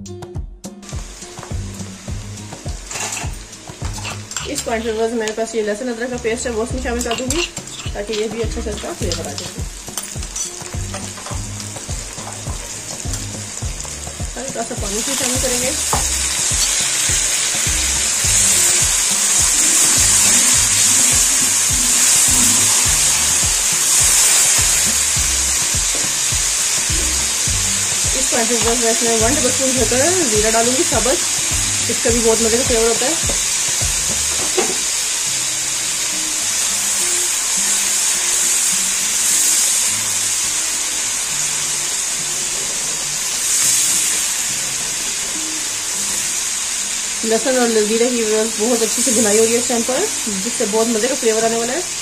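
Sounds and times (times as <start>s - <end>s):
background music: 0.0s - 52.0s
onions sizzling in hot oil: 0.7s - 52.0s.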